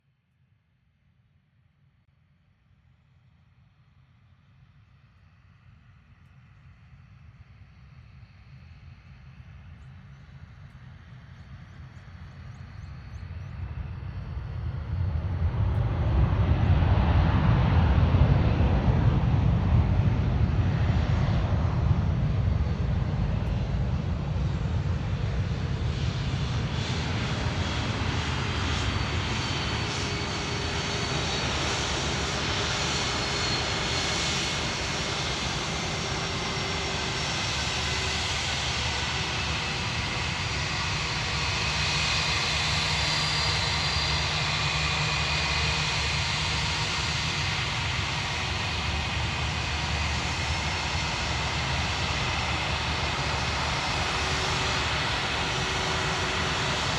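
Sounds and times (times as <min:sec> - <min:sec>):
jet engine rumble: 0:08.9 - 0:56.9
high engine whine: 0:14.8 - 0:56.9.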